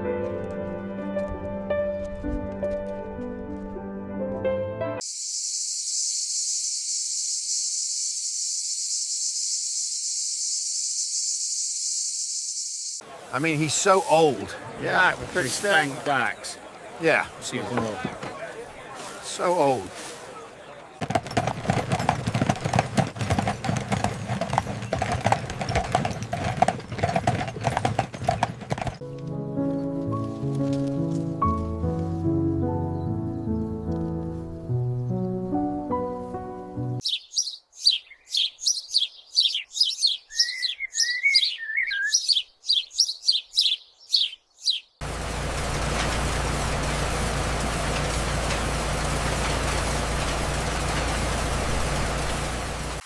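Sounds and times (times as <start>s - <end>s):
music: 0.0s - 5.0s, 29.0s - 37.0s
high-pitched hiss: 5.0s - 13.0s
rapid clopping knocks: 21.0s - 29.0s.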